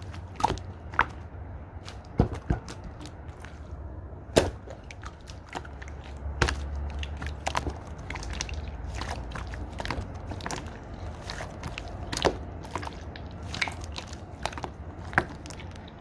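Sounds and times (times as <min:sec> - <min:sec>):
slime clicking and popping: 0:04.4 - 0:16.0.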